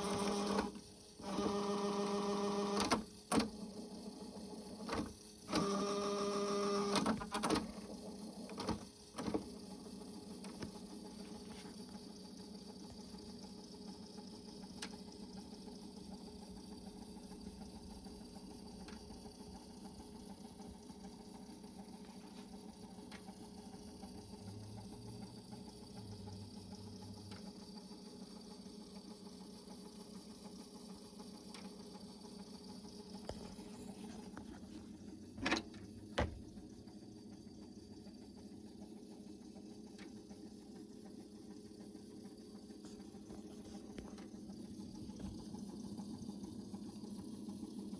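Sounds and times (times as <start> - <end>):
cassette tape motor whir: 0.0 - 47.9
tape transport clunks: 35.4 - 36.5.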